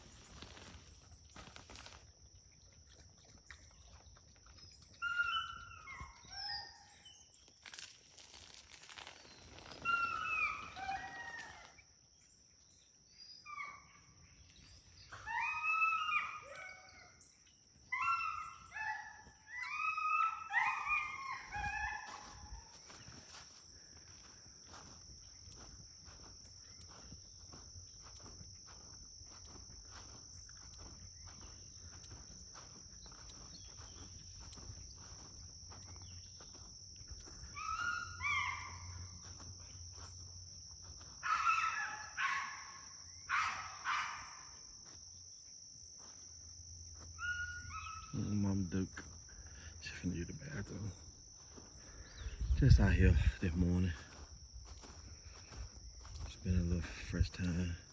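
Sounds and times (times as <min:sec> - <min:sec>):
insects droning: 0:00.0 - 0:57.9
dogs barking: 0:17.9 - 0:23.0, 0:37.4 - 0:39.5, 0:41.0 - 0:44.6.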